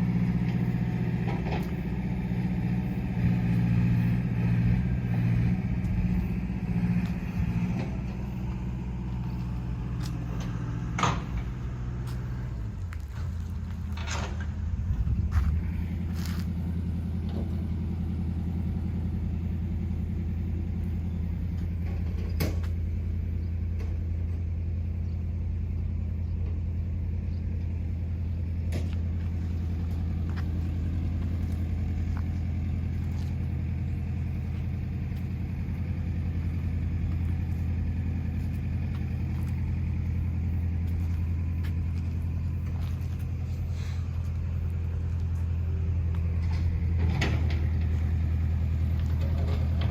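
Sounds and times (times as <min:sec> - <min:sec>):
engine idling: 0:00.0 - 0:49.9.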